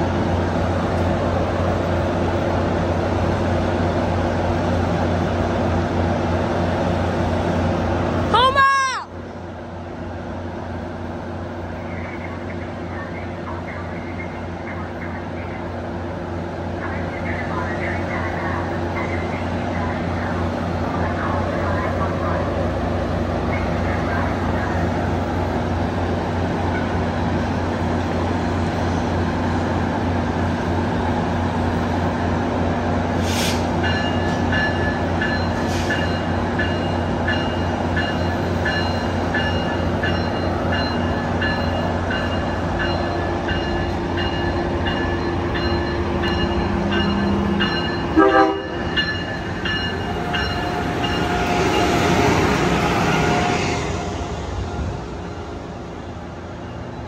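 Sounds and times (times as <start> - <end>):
train rumble and hum: 0.0 - 57.0
train rushing noise: 0.0 - 57.0
high ringing tone: 33.9 - 52.1
train horn: 48.1 - 48.9, 50.1 - 54.2.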